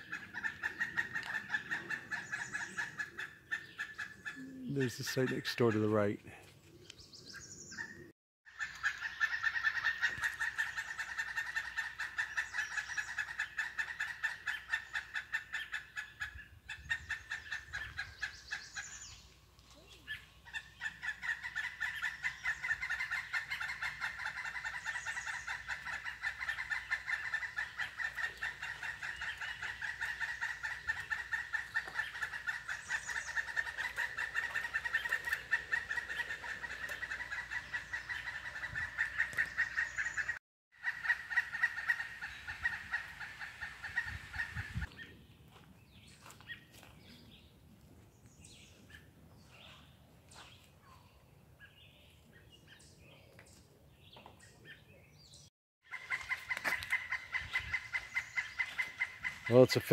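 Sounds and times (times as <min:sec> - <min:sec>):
chorus of pulsed animal calls: 0:20.5 - 0:44.6.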